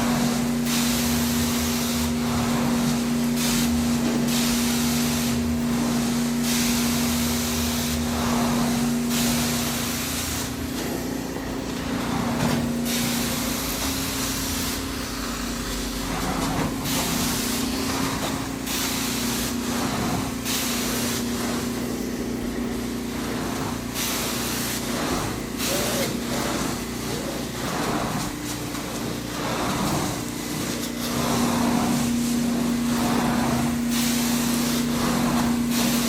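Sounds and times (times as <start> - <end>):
carpet extraction machine hum: 0.0 - 36.0
hiss of spray and suction: 23.2 - 28.3.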